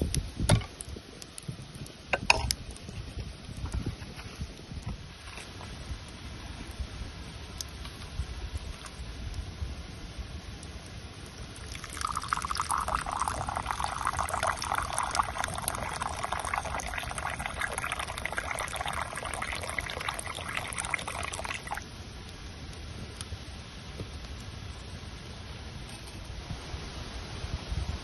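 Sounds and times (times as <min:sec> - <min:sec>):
liquid pouring into container: 0:11.6 - 0:21.8.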